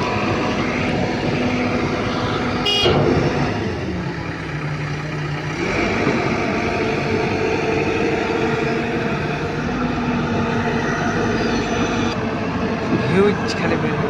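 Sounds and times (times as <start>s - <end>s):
diesel machinery engine running: 0.0s - 14.0s
high-pitched toot: 2.6s - 3.1s.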